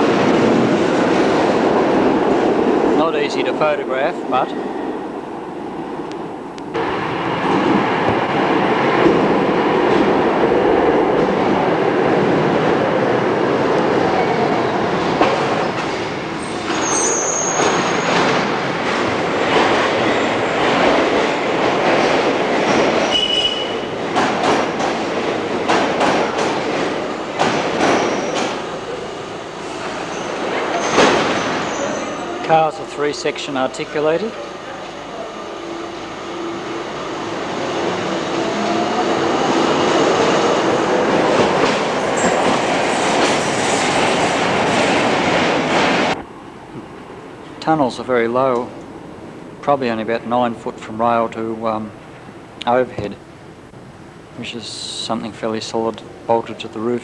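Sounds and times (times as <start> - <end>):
train wheels on rail: 0.0 - 57.0
wheel squeal: 16.4 - 18.2, 23.0 - 23.9, 27.9 - 28.6, 30.1 - 32.3.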